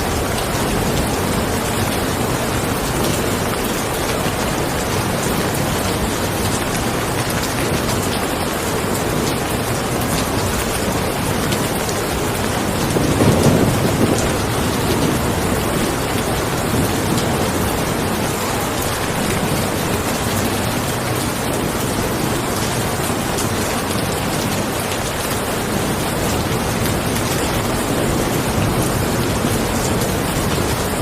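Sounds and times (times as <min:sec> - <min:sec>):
heavy rain: 0:00.0 - 0:31.0
distant thunder rumble: 0:12.6 - 0:18.1.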